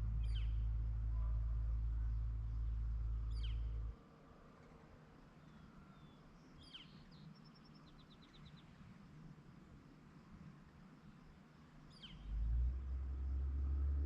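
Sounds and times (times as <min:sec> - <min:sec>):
low steady rumble: 0:00.0 - 0:06.6.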